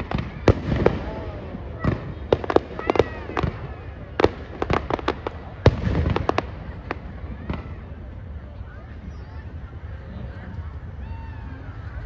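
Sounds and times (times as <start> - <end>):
fireworks bursting: 0.0 - 8.4.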